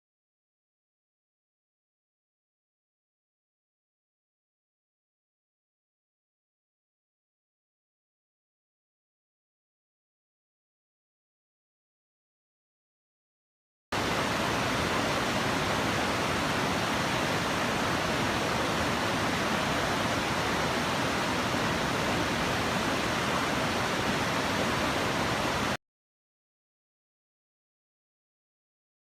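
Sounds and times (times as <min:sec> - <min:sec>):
rushing water: 0:14.0 - 0:25.8.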